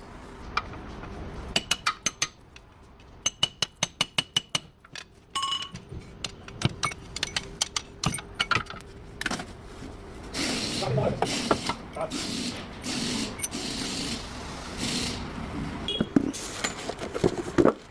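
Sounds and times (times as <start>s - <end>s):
hand tools clinking on metal: 4.9s - 8.8s.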